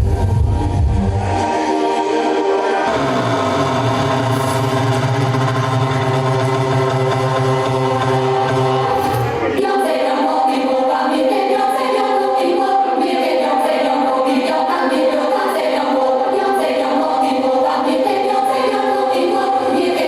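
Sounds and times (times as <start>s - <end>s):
loud techno music: 0.0s - 10.9s.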